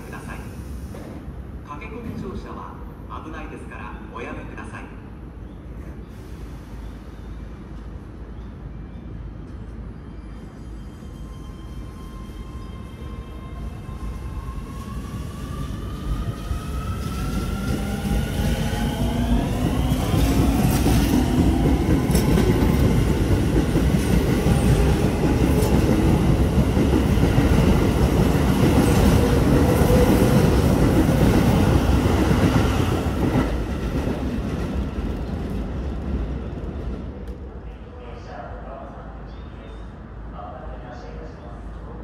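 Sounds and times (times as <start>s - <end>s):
electric train accelerating past: 5.8s - 37.6s.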